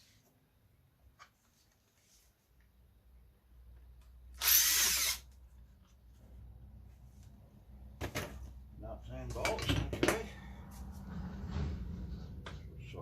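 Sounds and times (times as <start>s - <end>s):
power drill whirring: 4.3s - 5.4s.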